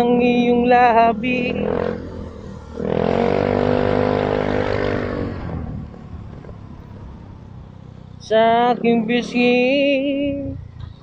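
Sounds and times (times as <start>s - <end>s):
road hum: 0.0s - 11.0s
vehicle engine revving: 0.0s - 11.0s
rushing noise: 1.6s - 9.4s.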